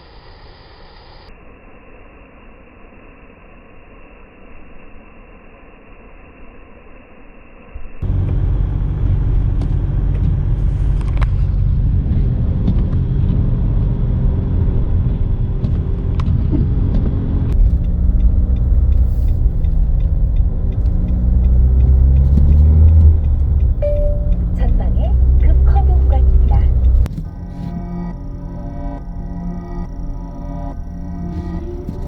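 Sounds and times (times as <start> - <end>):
car engine and road noise: 8.0 - 32.0.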